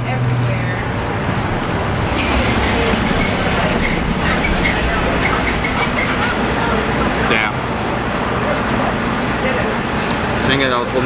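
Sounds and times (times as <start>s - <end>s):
train rumbling overhead: 0.0s - 11.0s
faint high squealing: 2.1s - 6.4s.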